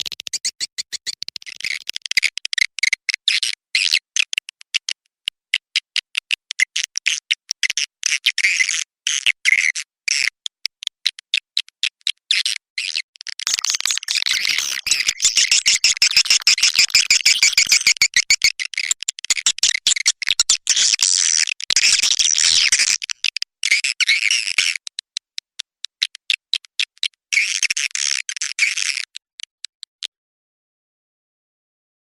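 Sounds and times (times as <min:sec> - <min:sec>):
swiftlets chirping and twittering: 0:00.0 - 0:02.0, 0:13.4 - 0:23.9.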